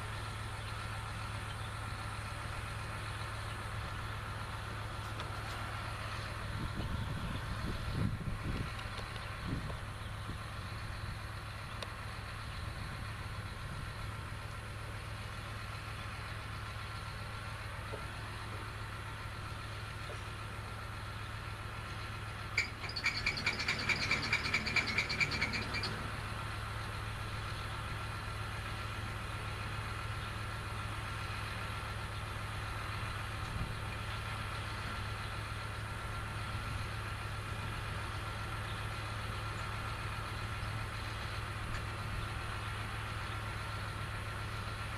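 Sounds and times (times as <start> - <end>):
distant tractor engine running: 0.0 - 44.9
rapid high-pitched rattling chatter: 22.5 - 26.0.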